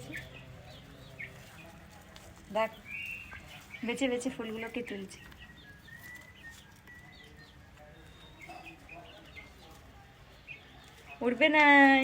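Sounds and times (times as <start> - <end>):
faint bird chirps: 2.8 - 11.2.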